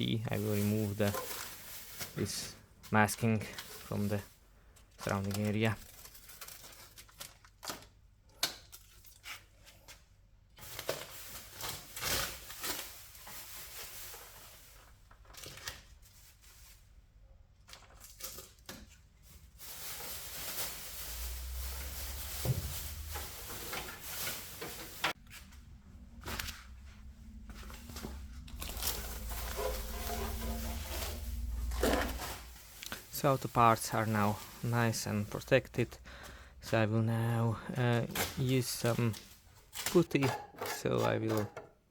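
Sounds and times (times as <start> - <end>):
paper crumpling: 0.3 - 4.2, 4.9 - 8.0, 19.2 - 25.6, 26.2 - 35.8.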